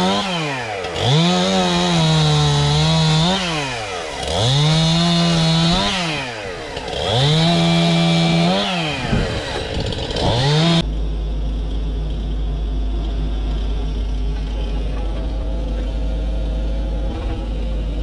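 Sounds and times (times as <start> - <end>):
chainsaw revving: 0.0 - 10.8.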